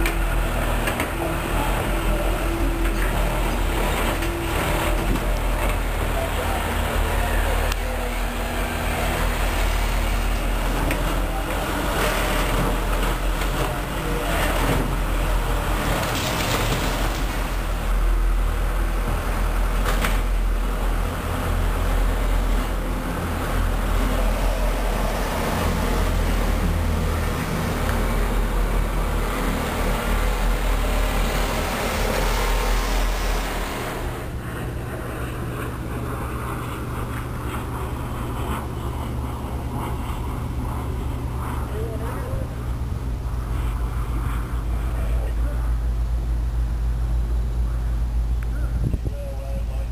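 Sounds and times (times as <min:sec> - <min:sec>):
locomotive engine drone: 0:00.0 - 0:49.9
wheels rushing on rails: 0:00.0 - 0:49.9.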